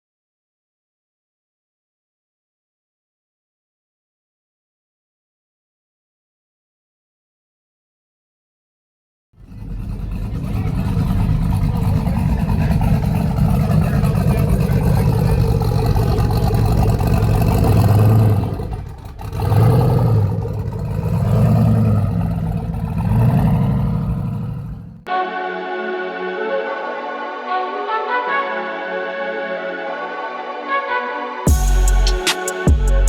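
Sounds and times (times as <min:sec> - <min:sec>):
truck engine revving: 0:09.4 - 0:25.1, 0:31.5 - 0:33.0.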